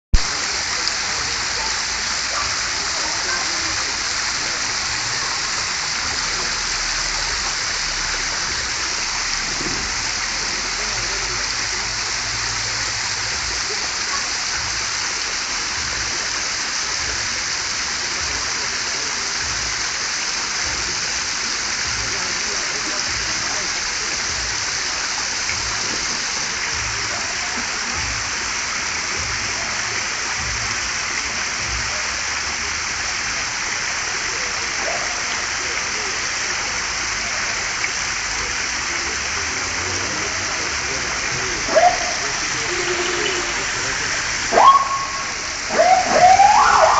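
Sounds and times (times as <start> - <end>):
sea surf washing on beach: 37.8 - 46.9.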